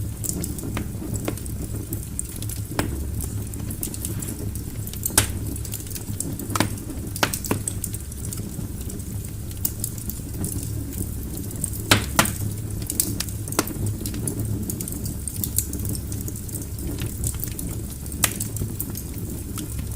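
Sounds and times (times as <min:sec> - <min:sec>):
fire crackling: 0:00.0 - 0:19.9
low rumble of flames: 0:00.0 - 0:19.9
wood popping: 0:02.2 - 0:08.0, 0:11.8 - 0:13.8.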